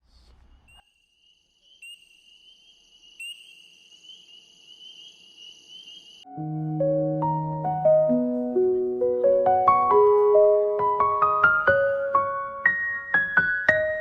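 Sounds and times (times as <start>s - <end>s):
crickets trilling: 0.6s - 6.3s
piano music: 6.2s - 14.0s.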